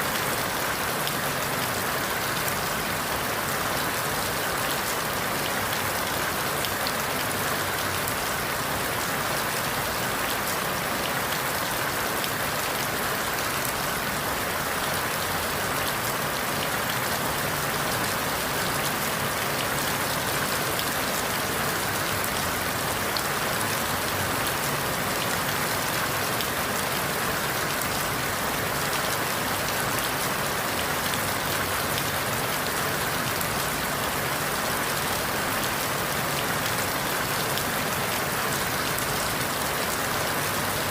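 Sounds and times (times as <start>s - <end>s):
rain falling on leaves: 0.0s - 40.9s.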